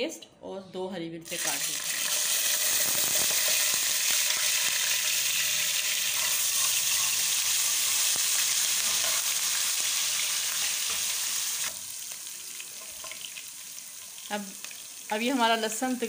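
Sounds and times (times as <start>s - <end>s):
paste frying in hot oil: 1.3s - 16.0s
metal spoon stirring: 6.0s - 9.5s.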